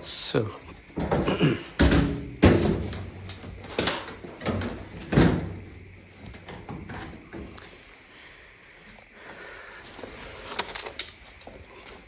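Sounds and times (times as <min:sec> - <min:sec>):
knocks of dryer panels being handled: 0:01.0 - 0:05.8.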